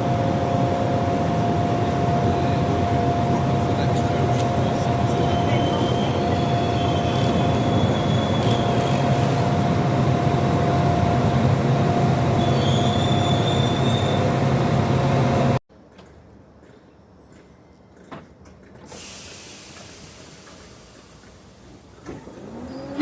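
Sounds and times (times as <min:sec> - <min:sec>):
train rumbling and humming: 0:00.0 - 0:23.0
train wheels squealing: 0:04.7 - 0:09.6, 0:12.3 - 0:14.4, 0:22.2 - 0:23.0.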